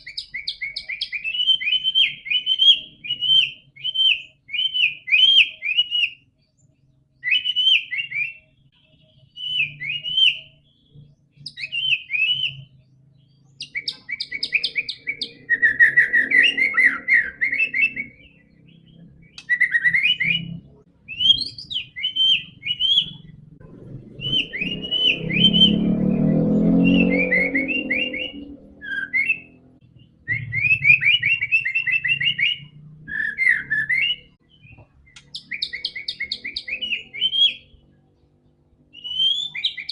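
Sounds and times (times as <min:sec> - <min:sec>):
bird singing whistled phrases: 0:00.0 - 0:06.4, 0:07.2 - 0:12.9, 0:13.5 - 0:23.4, 0:24.1 - 0:37.8, 0:38.9 - 0:39.9
low rumbling noise: 0:20.1 - 0:31.5.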